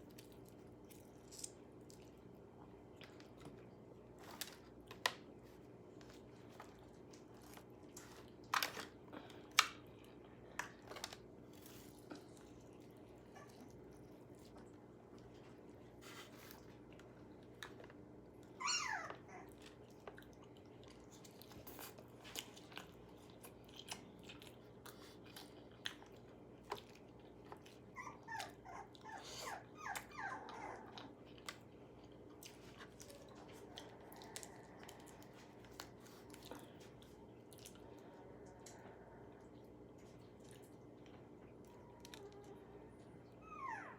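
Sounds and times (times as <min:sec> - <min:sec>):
crunching of food being eaten: 0:00.0 - 0:29.2, 0:29.8 - 0:42.6
dog whining: 0:13.2 - 0:13.7, 0:18.5 - 0:19.6, 0:27.9 - 0:31.2, 0:43.2 - 0:43.9.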